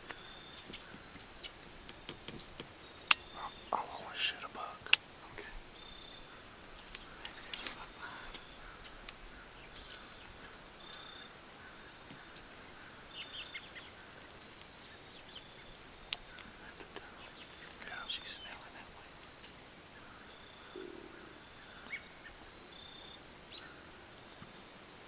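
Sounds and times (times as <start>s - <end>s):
faint bird chirps and whistles: 0.0s - 6.4s, 13.2s - 24.6s.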